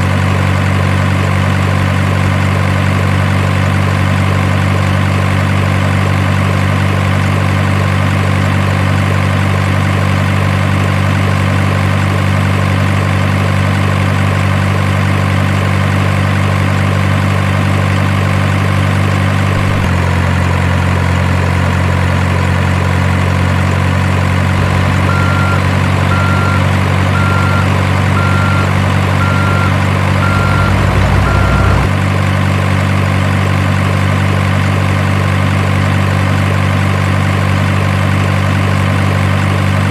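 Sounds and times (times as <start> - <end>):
truck engine idling: 0.0 - 39.9
faint short beeps: 27.2 - 31.9.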